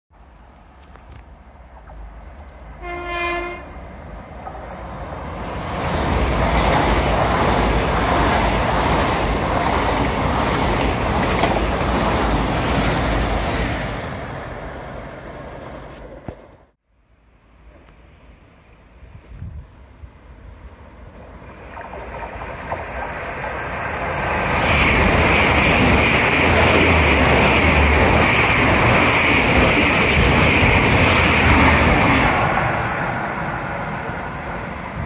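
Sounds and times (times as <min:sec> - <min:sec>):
train passing at speed: 0:00.2 - 0:16.8, 0:17.4 - 0:35.0
train horn blast: 0:02.8 - 0:03.8.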